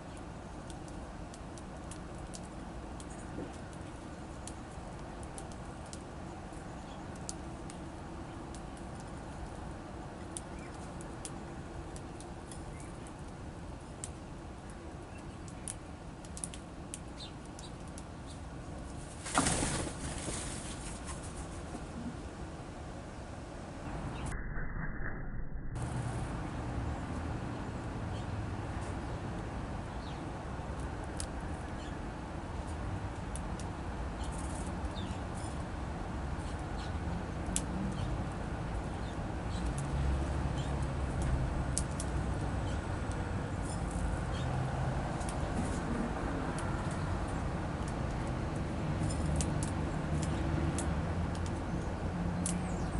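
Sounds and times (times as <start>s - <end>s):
faint bird ticks and clicks: 0.0s - 19.0s, 29.9s - 32.0s, 32.6s - 35.7s, 36.4s - 44.6s, 46.5s - 52.9s
bird wings fluttering: 19.0s - 21.8s.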